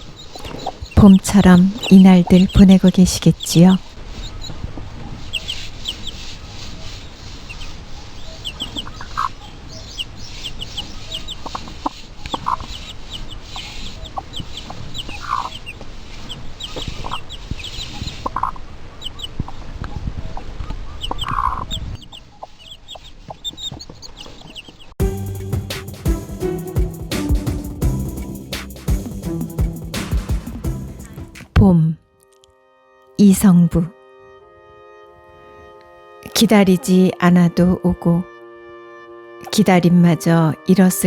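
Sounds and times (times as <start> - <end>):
chickens clucking: 0.0 - 24.9
low background noise: 0.0 - 25.0
small birds chirping: 0.0 - 25.0.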